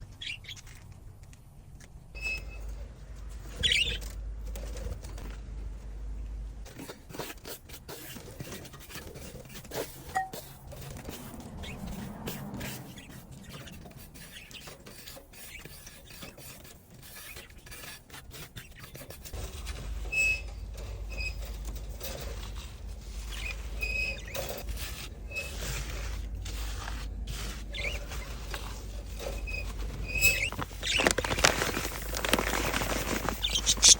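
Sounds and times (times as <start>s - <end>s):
bird cage scraping and rattling: 8.0s - 18.2s, 18.8s - 33.9s
short high-pitched squeaks: 29.1s - 31.5s, 33.3s - 33.9s.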